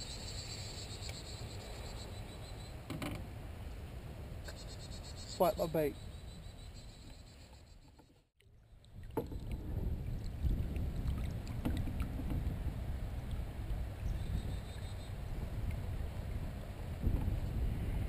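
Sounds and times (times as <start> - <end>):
kayak low rumble: 7.8 - 18.0.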